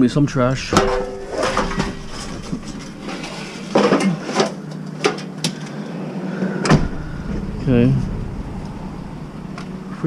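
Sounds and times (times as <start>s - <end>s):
low background hum: 0.0s - 10.0s
hard objects knocking and clattering: 0.7s - 5.2s.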